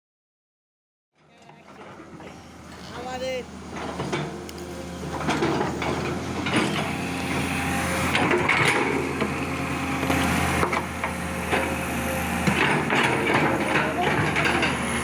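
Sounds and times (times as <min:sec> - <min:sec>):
excavator diesel engine running: 0:01.7 - 0:15.0
knocks and clatter: 0:12.4 - 0:15.0.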